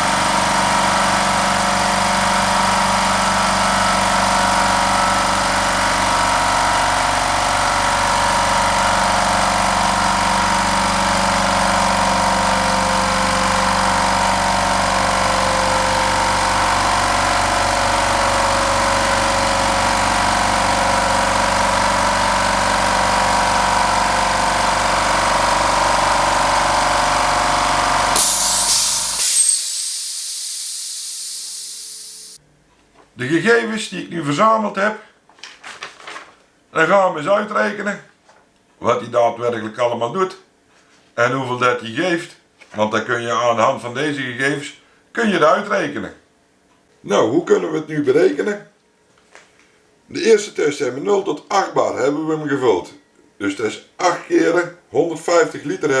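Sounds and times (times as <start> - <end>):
air compressor running: 0.0 - 32.4
air hissing: 28.1 - 32.4.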